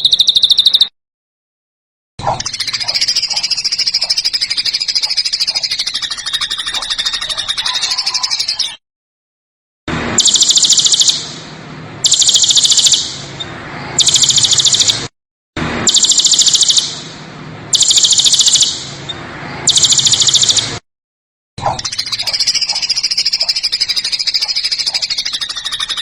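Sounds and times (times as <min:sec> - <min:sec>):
songbird rattling trills: 0:00.0 - 0:00.9, 0:02.2 - 0:08.8, 0:21.7 - 0:26.0.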